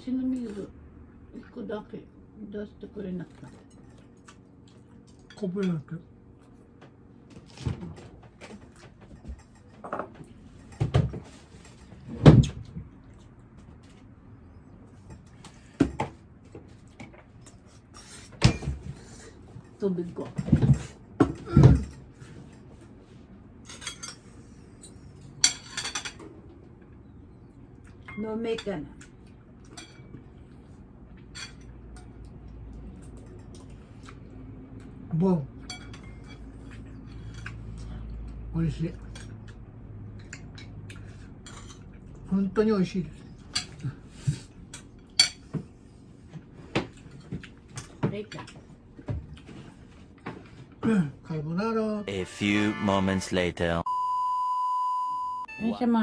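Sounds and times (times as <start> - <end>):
low background hum: 0.0 - 56.0
dishes knocking and clattering: 7.4 - 12.9, 15.1 - 17.3, 18.4 - 22.6
tableware clinking: 23.6 - 26.3, 31.3 - 32.1.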